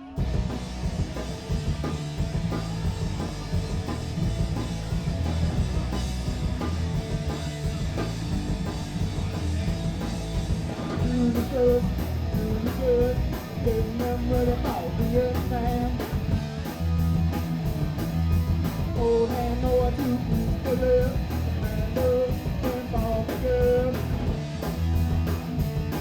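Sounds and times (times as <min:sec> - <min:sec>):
punk rock band playing: 0:00.0 - 0:26.0
person singing: 0:11.0 - 0:16.1, 0:19.0 - 0:24.2.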